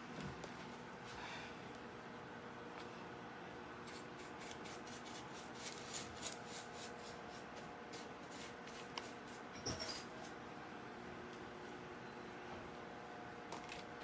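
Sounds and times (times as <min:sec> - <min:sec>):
scratchy brushing strokes: 0:03.9 - 0:09.5.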